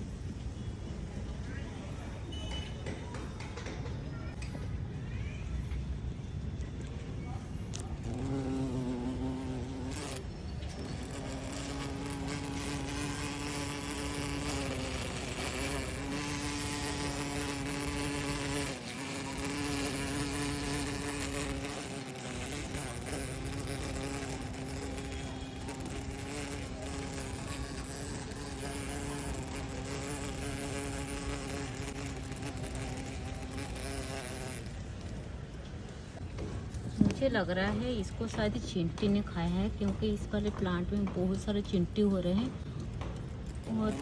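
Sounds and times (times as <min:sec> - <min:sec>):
insect wings buzzing: 0:07.7 - 0:35.3, 0:42.8 - 0:44.0.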